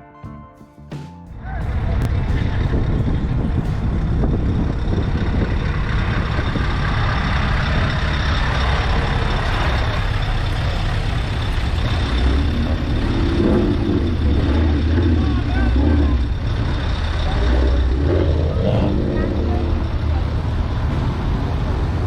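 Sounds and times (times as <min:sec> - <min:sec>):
truck diesel engine rumbling: 0:00.0 - 0:22.0.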